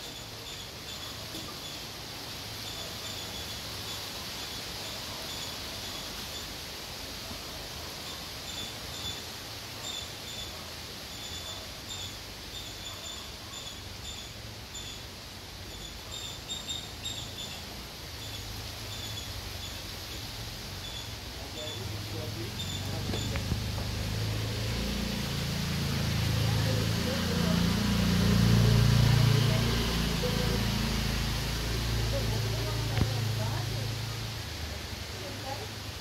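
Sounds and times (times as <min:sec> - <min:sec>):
steady background hiss: 0:00.0 - 0:36.0
bird chirping: 0:02.6 - 0:06.6, 0:08.0 - 0:25.9.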